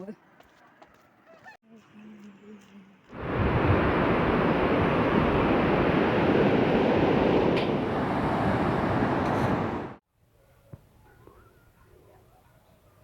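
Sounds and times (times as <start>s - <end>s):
waterfall rushing: 3.2s - 10.0s.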